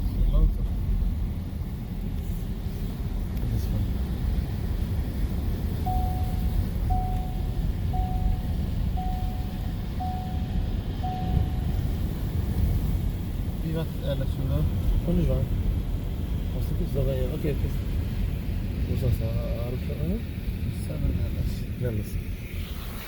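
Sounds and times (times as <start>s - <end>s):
vehicle low rumble: 0.0s - 23.0s
short beeps: 5.8s - 11.8s.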